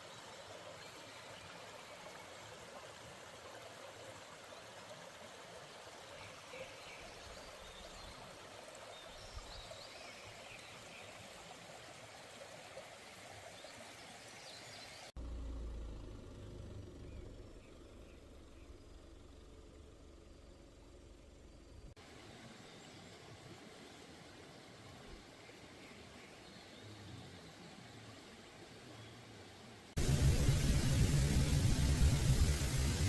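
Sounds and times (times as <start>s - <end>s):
stream water flowing: 0.0s - 15.2s, 21.9s - 33.0s
low rumble: 15.2s - 22.0s, 30.0s - 33.0s.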